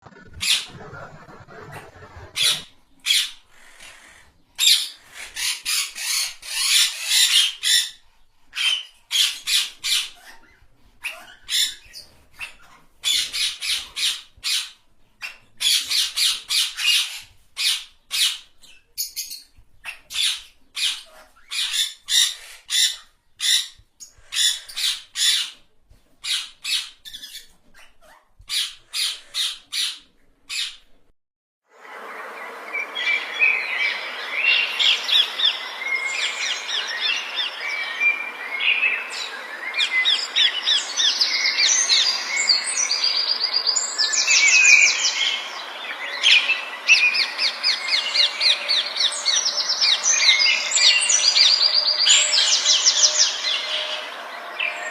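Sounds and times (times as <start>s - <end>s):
birds calling: 32.5s - 54.9s.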